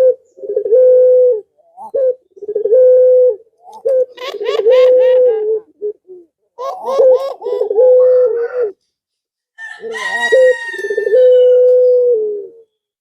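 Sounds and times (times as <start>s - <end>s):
dove cooing: 0.0s - 8.8s, 9.6s - 12.7s
rooster crowing: 9.6s - 12.2s.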